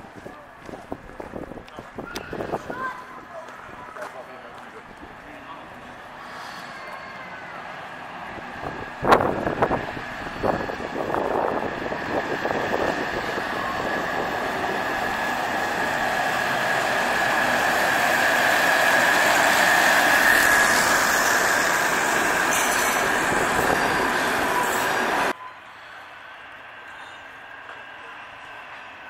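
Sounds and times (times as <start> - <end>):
train passing: 0.0 - 29.0
train wheels squealing on rails: 6.0 - 29.0.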